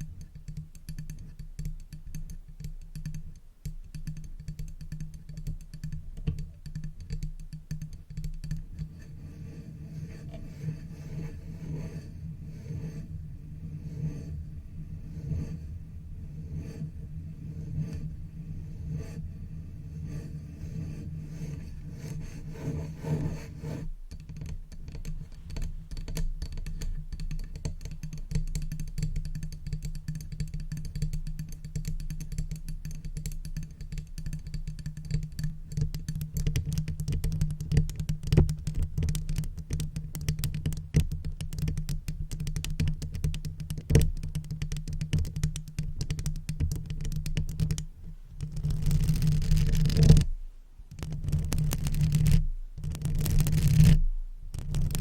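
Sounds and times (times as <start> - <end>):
brush bristles scratching microphone: 48.4 - 50.3, 51.0 - 54.0, 54.6 - 55.0.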